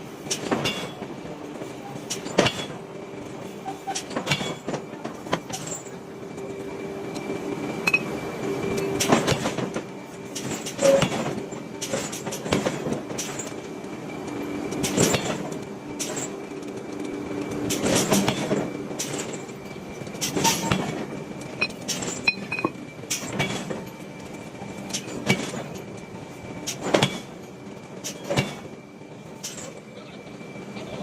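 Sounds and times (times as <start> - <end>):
metal-on-metal forging blows: 20.2 - 21.0, 21.6 - 23.8.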